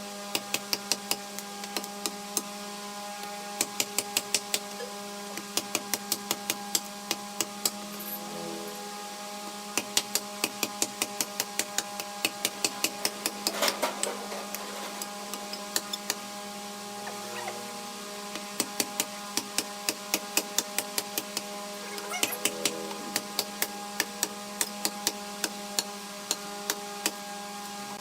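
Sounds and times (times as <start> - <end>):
machine hum: 4.4 - 27.9.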